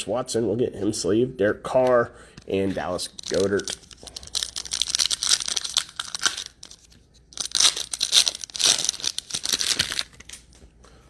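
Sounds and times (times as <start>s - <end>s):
foil wrapper tearing and crinkling: 2.9s - 10.6s.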